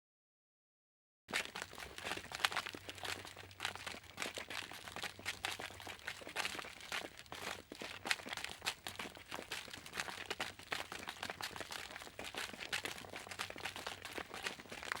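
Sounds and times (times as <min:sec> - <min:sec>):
footsteps on crunchy surface: 0:01.3 - 0:15.0.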